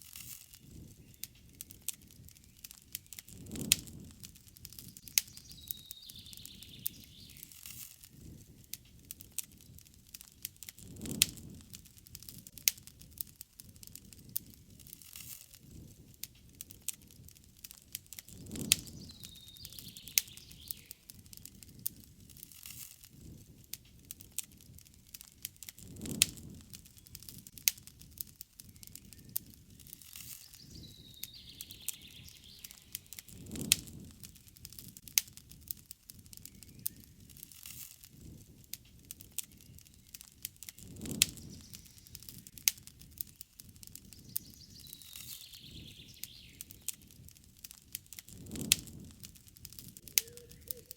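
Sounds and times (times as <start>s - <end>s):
campfire crackling: 0.0s - 50.9s
bird chirping: 5.0s - 7.6s, 18.7s - 21.0s, 28.6s - 33.5s, 44.1s - 46.9s, 50.1s - 50.9s.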